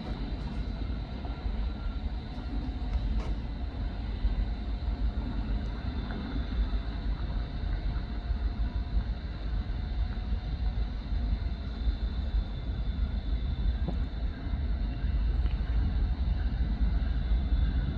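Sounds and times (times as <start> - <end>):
freight train rumbling past: 0.0 - 6.6.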